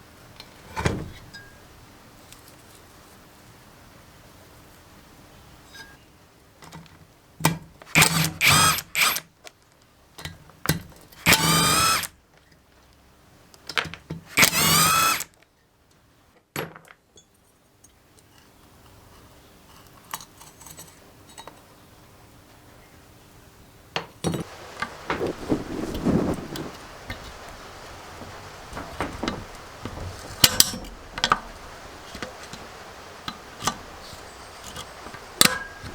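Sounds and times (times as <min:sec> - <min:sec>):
power drill motor whine: 0:08.0 - 0:09.2, 0:11.3 - 0:12.1, 0:14.4 - 0:15.3
clicks and knocks: 0:24.4 - 0:35.9.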